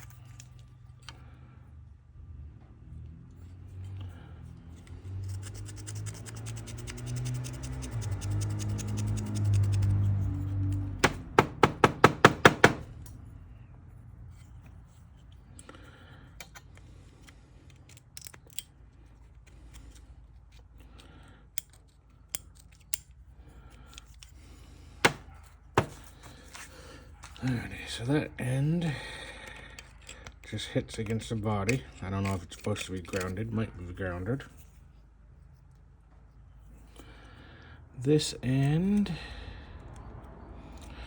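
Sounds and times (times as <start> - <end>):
sharp metal clicks: 5.2 - 13.2
fast fine ticking: 5.4 - 9.9.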